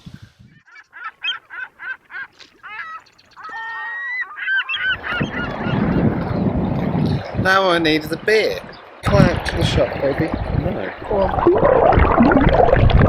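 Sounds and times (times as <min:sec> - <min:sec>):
wind noise: 0:00.0 - 0:00.6, 0:04.8 - 0:13.0.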